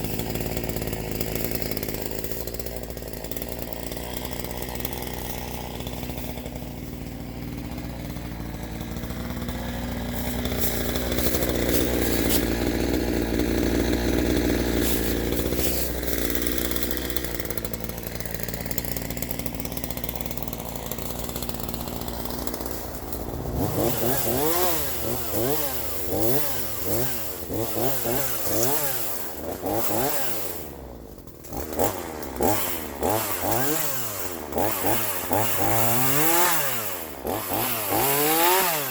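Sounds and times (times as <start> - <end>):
chainsaw running and revving: 0.0 - 38.9.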